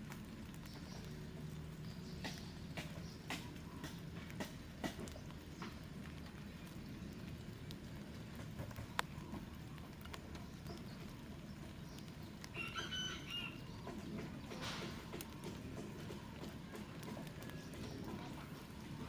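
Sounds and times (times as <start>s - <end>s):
rooster crowing: 12.5s - 13.7s.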